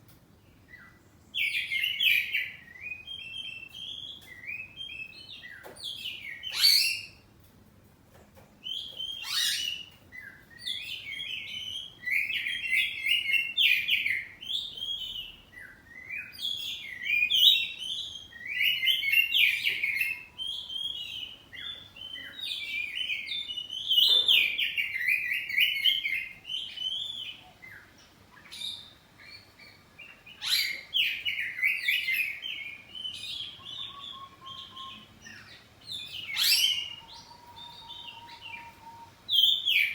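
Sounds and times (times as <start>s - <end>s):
bird singing varied song: 0.0s - 7.3s, 8.4s - 39.9s
sharp piercing bird whistles: 33.1s - 35.5s.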